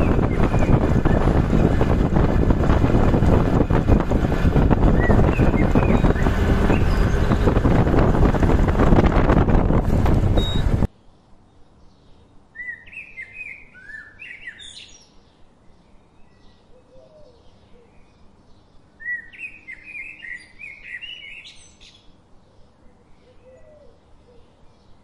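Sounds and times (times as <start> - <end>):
bird chirping: 0.0 - 2.0, 4.8 - 7.8, 10.4 - 25.0.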